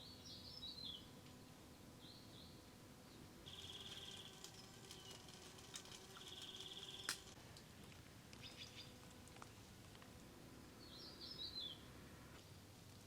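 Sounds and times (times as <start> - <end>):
bird trills: 3.5 - 5.4, 6.0 - 7.3.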